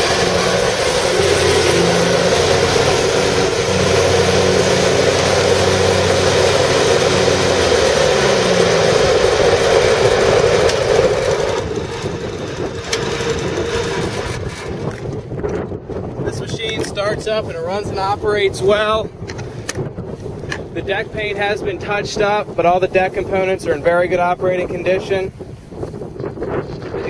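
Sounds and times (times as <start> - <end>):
lawn mower engine running: 0.0 - 15.3.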